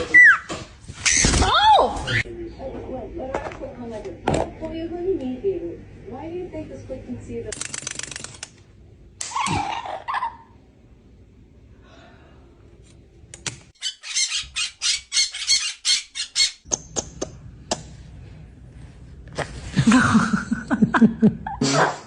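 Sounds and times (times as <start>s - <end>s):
parrot squawking: 13.8s - 16.6s.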